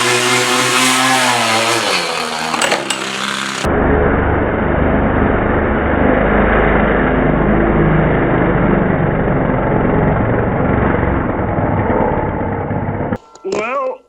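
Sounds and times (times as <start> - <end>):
model glow engine running: 0.0 - 3.7.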